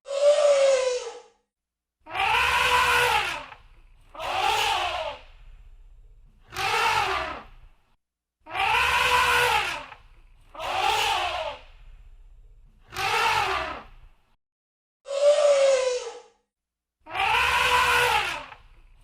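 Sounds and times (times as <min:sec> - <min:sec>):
elephant trumpeting: 0:02.1 - 0:05.2, 0:06.5 - 0:07.5, 0:08.5 - 0:11.6, 0:12.9 - 0:13.9, 0:17.1 - 0:18.6.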